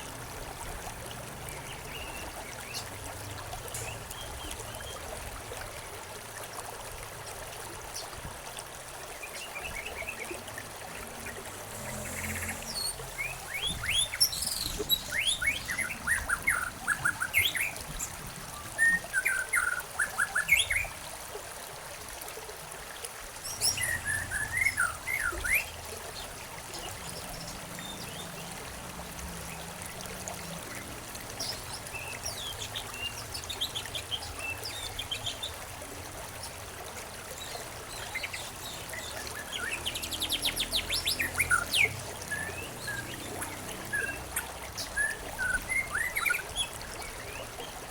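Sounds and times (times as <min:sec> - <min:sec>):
stream trickling: 0:00.0 - 0:47.9
songbirds chirping: 0:07.9 - 0:21.0, 0:23.4 - 0:47.9.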